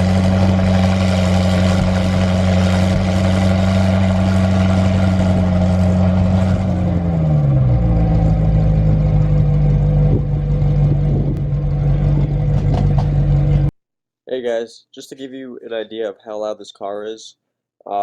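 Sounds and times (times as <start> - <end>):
car engine running: 0.0 - 13.7.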